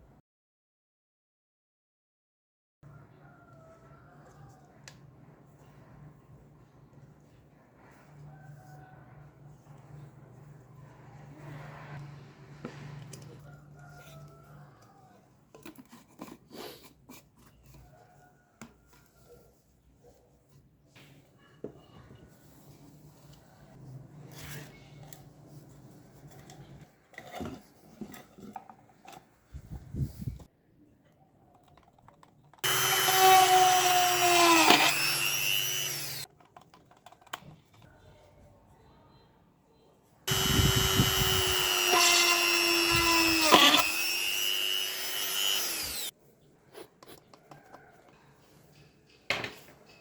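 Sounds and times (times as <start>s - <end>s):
light clicks and handling noises: 31.0s - 32.6s, 36.3s - 38.5s
rotary tool whining: 32.6s - 36.3s, 40.3s - 46.1s.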